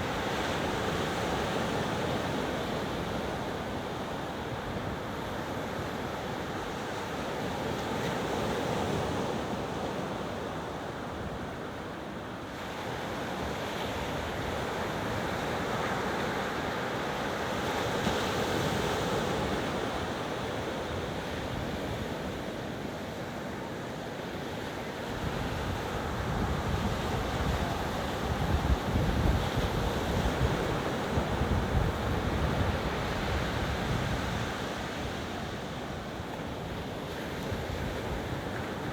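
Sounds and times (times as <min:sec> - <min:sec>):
ocean surf washing onto beach: 0:24.6 - 0:38.9
wind rumbling on microphone: 0:25.2 - 0:35.2.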